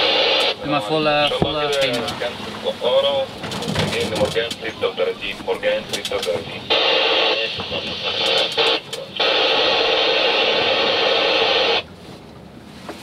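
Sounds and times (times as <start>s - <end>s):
static hiss bursts: 0.0s - 0.6s, 6.0s - 11.8s.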